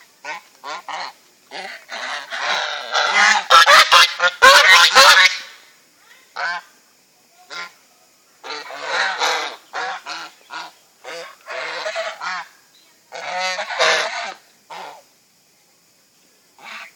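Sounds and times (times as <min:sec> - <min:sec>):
fowl calling harshly: 0:00.2 - 0:05.6, 0:06.4 - 0:06.7, 0:07.5 - 0:07.8, 0:08.4 - 0:15.0, 0:16.6 - 0:16.9.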